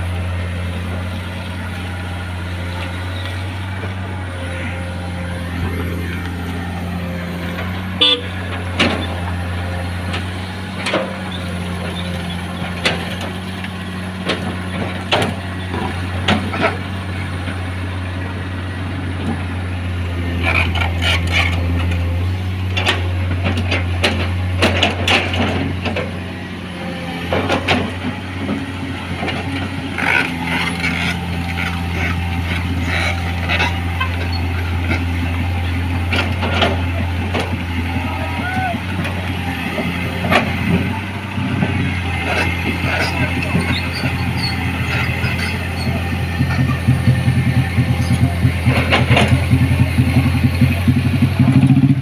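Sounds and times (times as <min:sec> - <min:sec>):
diesel truck engine running: 0:00.0 - 0:52.0
sharp knocks and clatter: 0:08.5 - 0:09.3, 0:12.6 - 0:16.9, 0:22.7 - 0:26.2, 0:27.2 - 0:35.2, 0:36.0 - 0:37.7, 0:41.6 - 0:50.4.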